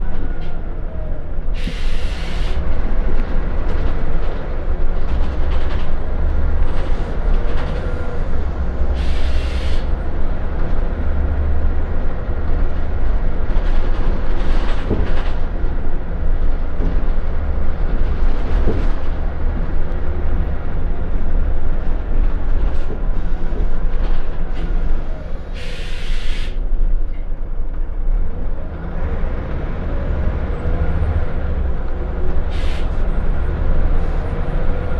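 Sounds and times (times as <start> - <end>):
low diesel rumble of bus: 0.0 - 34.9
road noise: 0.0 - 34.9
short hisses of air: 1.6 - 2.6, 9.0 - 9.9, 25.6 - 26.6, 32.5 - 32.9.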